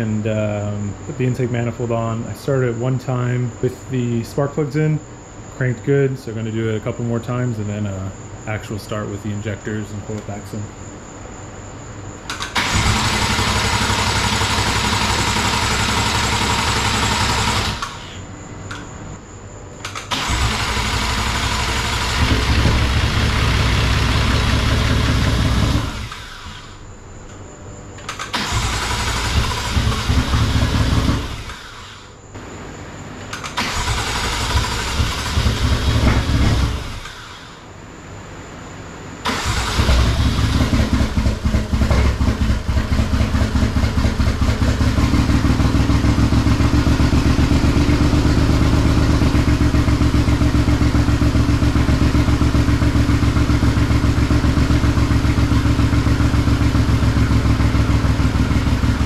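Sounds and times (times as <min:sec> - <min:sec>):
engine starter cranking: 0:12.3 - 0:18.2, 0:19.8 - 0:26.8, 0:28.0 - 0:32.0, 0:33.3 - 0:37.6, 0:39.2 - 0:50.6
loud engine running: 0:12.5 - 0:18.1, 0:20.1 - 0:26.8, 0:28.3 - 0:32.0, 0:33.5 - 0:37.5, 0:39.2 - 0:59.0.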